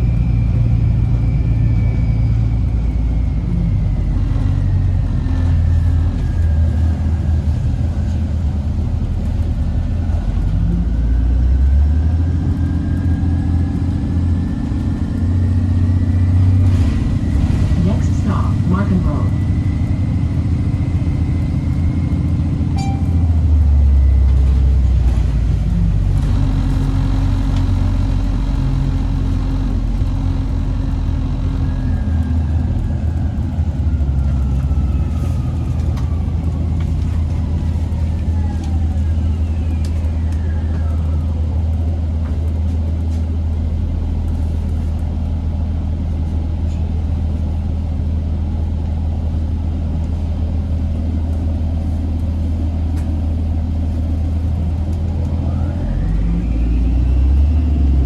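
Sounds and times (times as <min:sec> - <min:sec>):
bus engine drone: 0:00.0 - 0:58.0
whines gliding down in pitch: 0:55.2 - 0:58.0.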